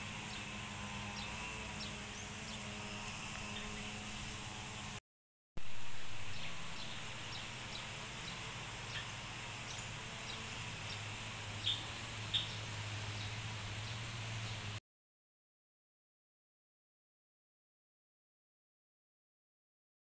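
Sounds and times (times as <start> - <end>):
small birds chirping: 0.0 - 4.2, 5.9 - 14.8
steady low hum: 0.0 - 5.0, 5.6 - 14.8.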